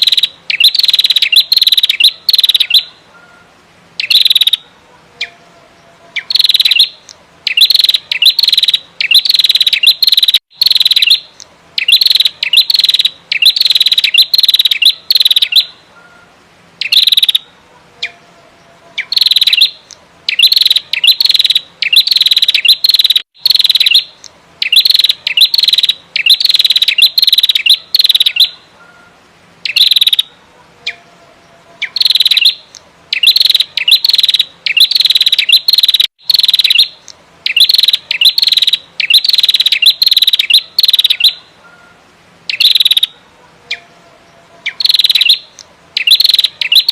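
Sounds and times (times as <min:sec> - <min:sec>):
bird chattering calls: 0:00.0 - 0:04.6, 0:06.2 - 0:18.2, 0:19.0 - 0:31.0, 0:31.8 - 0:43.9, 0:44.6 - 0:46.9.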